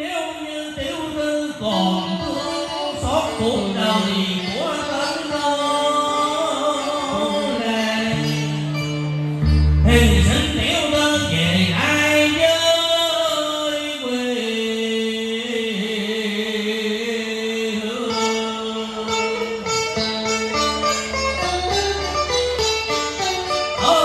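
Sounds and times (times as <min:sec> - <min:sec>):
person singing in gliding phrases: 0:00.0 - 0:08.8, 0:09.8 - 0:19.9
sustained instrumental accompaniment: 0:01.6 - 0:13.0, 0:17.8 - 0:24.0.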